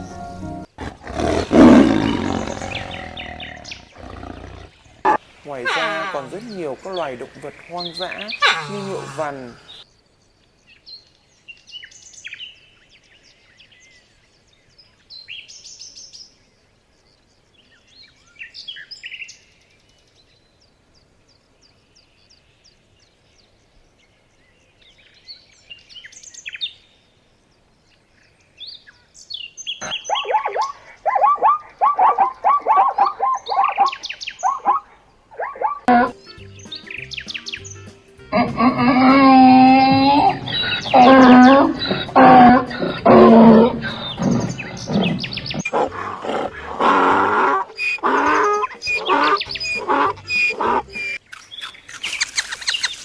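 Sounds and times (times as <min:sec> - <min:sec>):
birds singing: 0:00.0 - 0:53.0
rapid lower-pitched bird calls: 0:29.6 - 0:36.1, 0:38.4 - 0:53.0.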